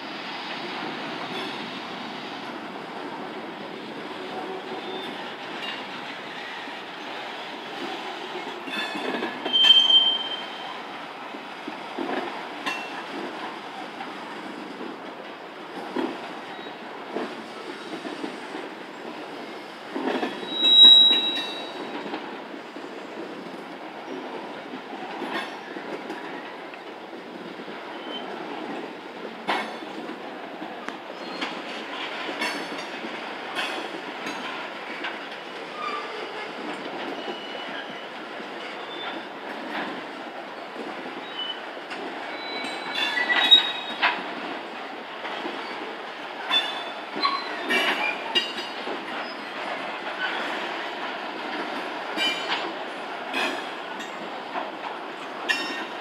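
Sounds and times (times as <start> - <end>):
railroad cars rumbling: 0.0 - 56.0
wheel squeals: 9.4 - 10.6, 20.4 - 21.8, 42.3 - 44.0.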